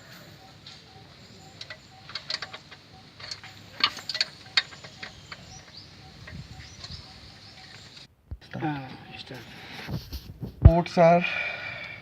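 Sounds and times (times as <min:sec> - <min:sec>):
metal tools clinking: 0:01.3 - 0:07.2.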